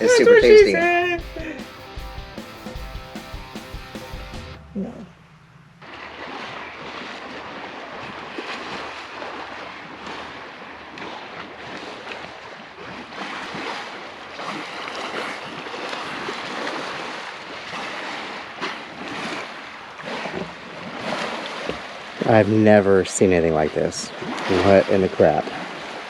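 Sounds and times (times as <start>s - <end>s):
wind and water rushing: 4.6s - 26.0s.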